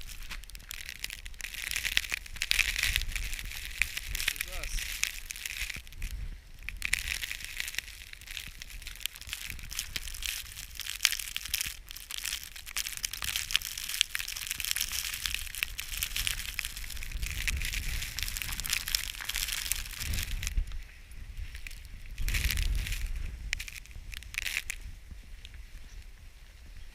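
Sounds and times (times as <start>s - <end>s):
footsteps crunching through snow: 0.0s - 20.8s.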